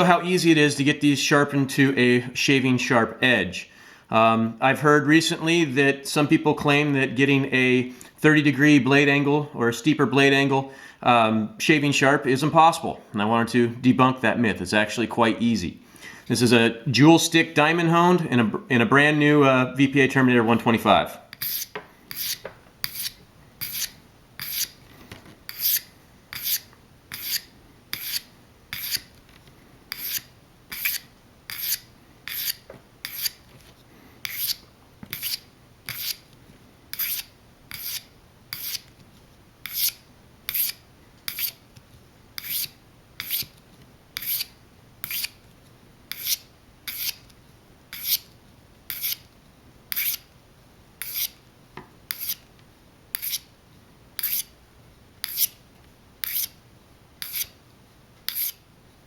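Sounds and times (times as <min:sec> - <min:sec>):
blade scraping on a hone: 0:21.4 - 0:24.8, 0:25.5 - 0:29.1.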